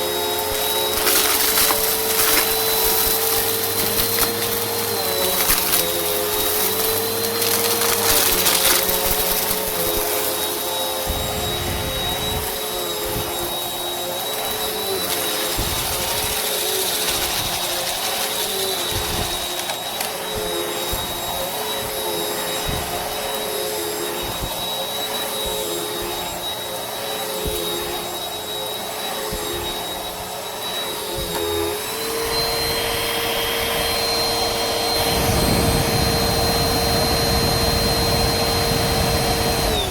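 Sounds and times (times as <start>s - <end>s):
vacuum cleaner motor whining: 0.0s - 39.9s
debris crackling in vacuum: 0.3s - 10.5s, 14.4s - 22.0s.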